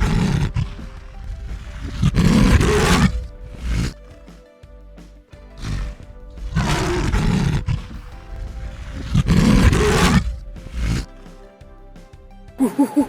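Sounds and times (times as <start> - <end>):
tiger roaring: 0.0 - 4.0, 5.6 - 11.1
background music: 0.0 - 13.0.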